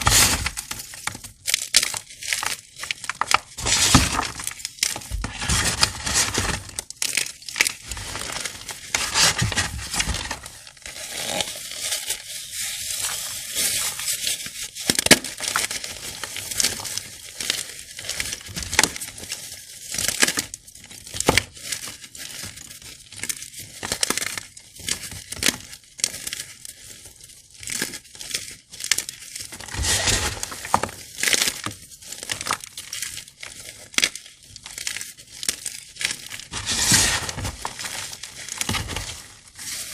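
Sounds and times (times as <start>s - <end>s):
chalk blocks crunching by hand: 0.0s - 12.0s, 27.6s - 39.9s.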